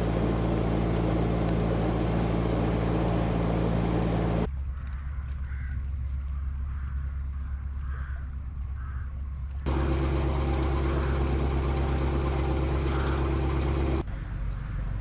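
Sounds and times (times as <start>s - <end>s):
boat engine humming: 0.0s - 4.5s, 9.6s - 14.1s.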